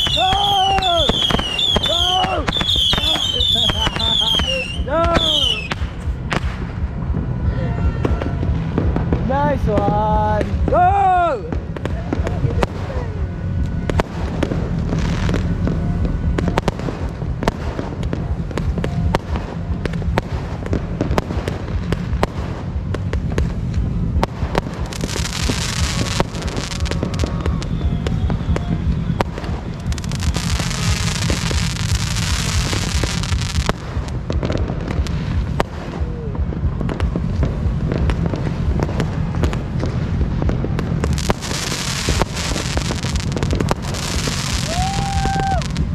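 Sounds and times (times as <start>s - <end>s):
fireworks and firecrackers banging: 0.0s - 45.9s
loud hissing fireworks: 0.0s - 45.9s.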